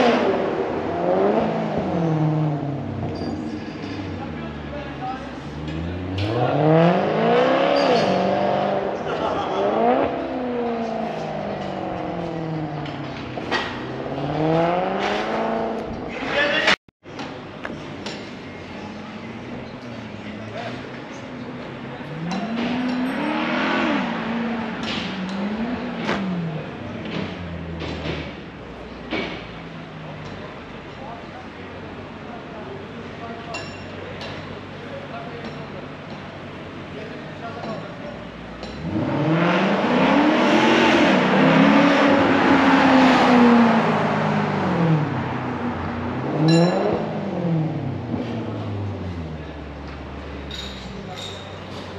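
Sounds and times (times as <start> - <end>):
car engine revving and idling: 0.0 - 16.8, 17.7 - 33.4, 34.2 - 51.9.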